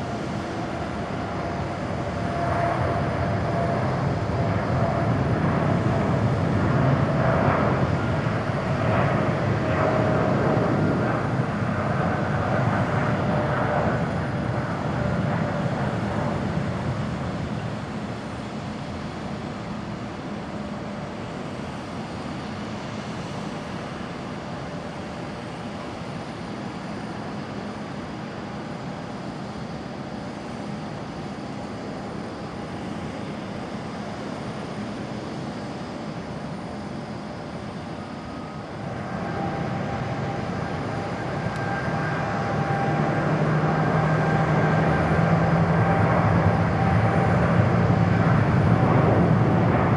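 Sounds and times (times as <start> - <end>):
jet engine rushing: 32.8 - 49.9.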